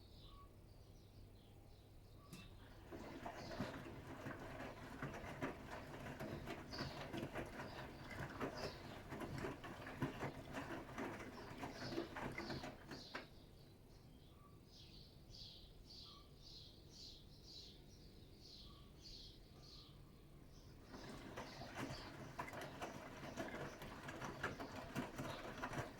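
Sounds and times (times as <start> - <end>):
washing machine drum tumbling: 2.4 - 13.3, 20.8 - 25.9
water sloshing: 2.6 - 13.3, 20.8 - 25.9.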